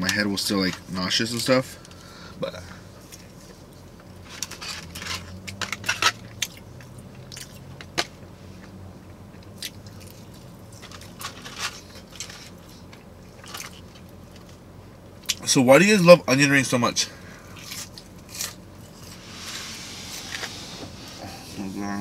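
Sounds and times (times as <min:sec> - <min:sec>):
crisp chewing crunches: 0:04.2 - 0:07.7, 0:08.6 - 0:14.6.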